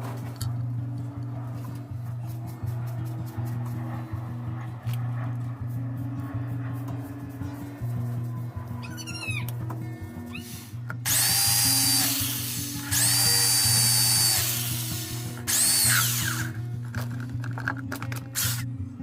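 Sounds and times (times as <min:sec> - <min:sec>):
background music: 0:00.0 - 0:19.0
power tool whining: 0:09.4 - 0:18.7.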